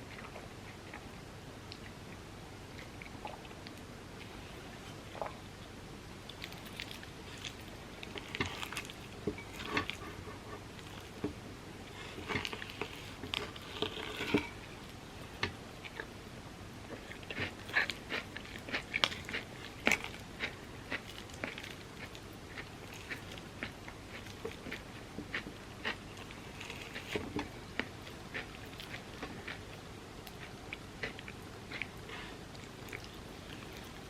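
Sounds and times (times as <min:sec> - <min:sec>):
biting and chewing crunchy food: 0:06.2 - 0:16.2, 0:16.9 - 0:34.0.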